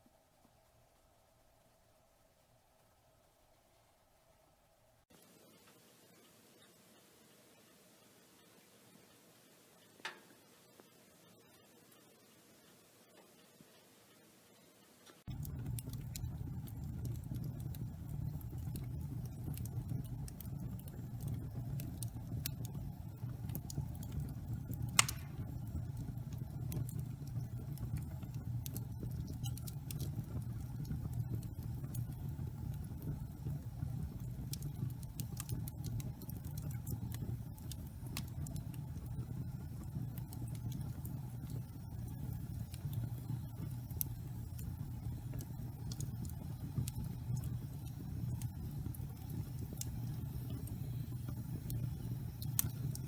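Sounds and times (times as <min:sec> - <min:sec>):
burning wood crackling: 0:15.3 - 0:53.0
flames rumbling: 0:15.3 - 0:53.0.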